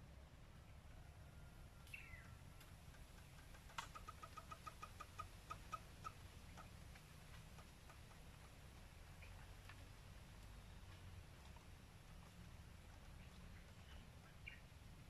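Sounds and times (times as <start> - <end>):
faint bird calls: 1.7 - 9.8.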